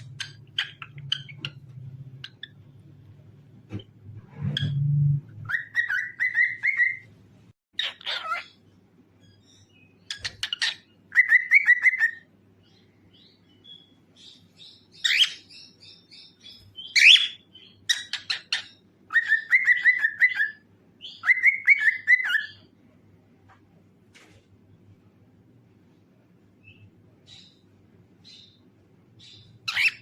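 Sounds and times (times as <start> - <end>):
cockatiel chirping: 0.0 - 2.6, 5.4 - 7.1, 7.8 - 8.6, 9.2 - 12.2, 13.2 - 22.7, 29.2 - 30.0.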